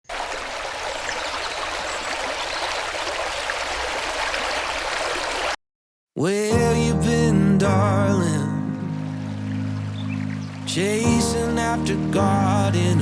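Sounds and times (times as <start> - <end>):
stream water babbling: 0.0 - 5.6, 9.0 - 12.2.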